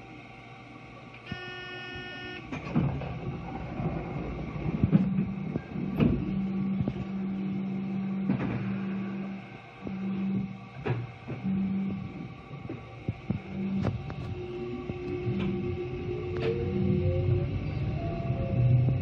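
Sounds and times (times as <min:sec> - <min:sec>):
train equipment hum: 0:00.0 - 0:19.0
electronic tone: 0:01.3 - 0:02.5.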